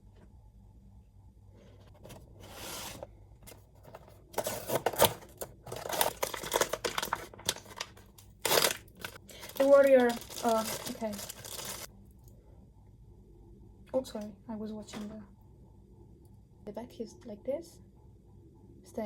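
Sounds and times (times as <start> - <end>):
packaging tearing and crinkling: 3.9 - 11.9.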